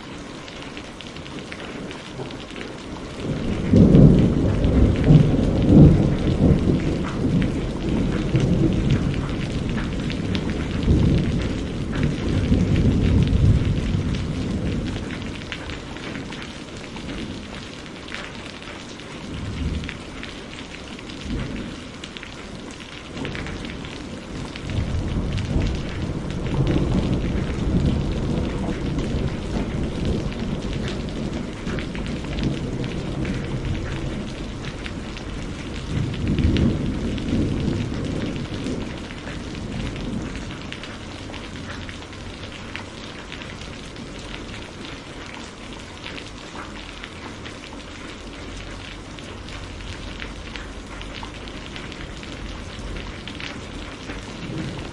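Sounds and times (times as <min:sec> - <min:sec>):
rain pattering: 0:00.0 - 0:54.9
low rolling thunder: 0:01.2 - 0:18.2, 0:19.2 - 0:45.8, 0:48.5 - 0:54.9.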